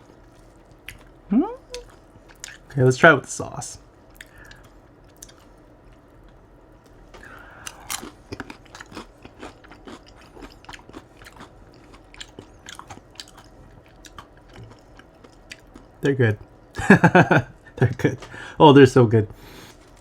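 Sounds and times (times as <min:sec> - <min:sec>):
crisp chewing crunches: 0:04.1 - 0:06.4, 0:07.1 - 0:16.0
crunchy bite of fried food: 0:07.2 - 0:15.9.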